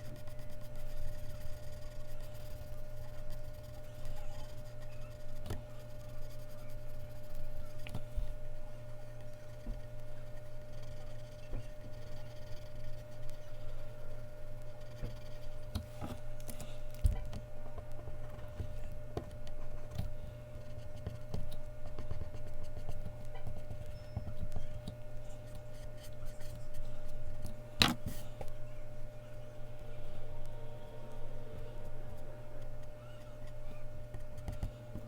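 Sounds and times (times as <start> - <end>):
pencil scratching on paper: 0.0 - 16.2
steady low hum: 0.0 - 35.0.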